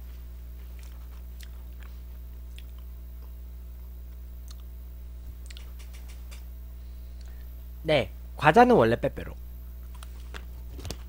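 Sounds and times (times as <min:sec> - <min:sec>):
low electrical hum: 0:00.0 - 0:11.0
chewing and crunching biscuit: 0:00.6 - 0:03.4, 0:09.8 - 0:11.0.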